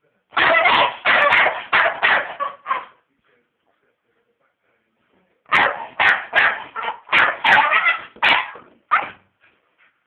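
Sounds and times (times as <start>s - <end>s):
dog barking: 0.4s - 3.0s, 5.5s - 9.2s.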